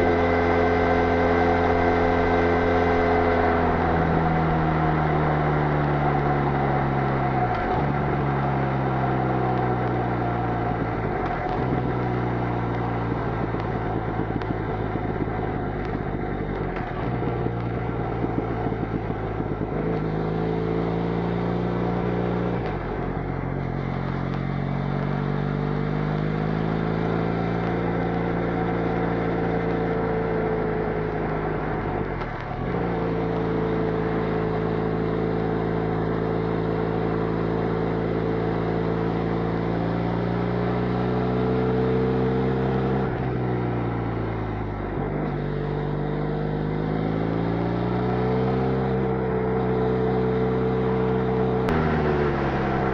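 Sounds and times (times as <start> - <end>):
motorcycle engine at speed: 0.0 - 52.9
road and wind noise: 0.0 - 52.9.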